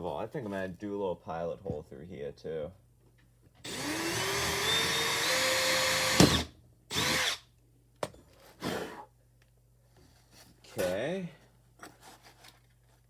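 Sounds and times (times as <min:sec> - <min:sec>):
power drill whining: 0:03.6 - 0:07.4.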